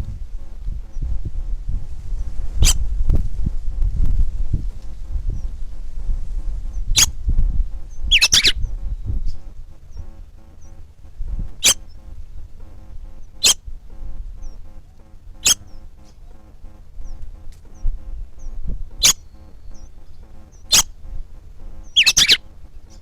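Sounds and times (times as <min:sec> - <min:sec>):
low rumble: 0:00.0 - 0:10.3
short sharp bird calls: 0:08.1 - 0:08.7, 0:11.6 - 0:12.0, 0:13.4 - 0:13.6, 0:15.4 - 0:16.2, 0:20.5 - 0:21.0, 0:21.8 - 0:22.4.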